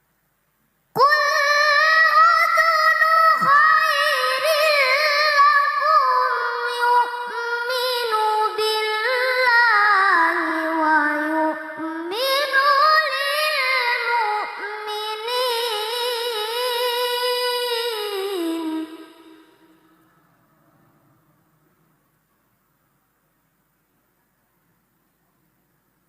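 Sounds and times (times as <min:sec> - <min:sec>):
child chanting melodic recitation: 0:01.0 - 0:19.9.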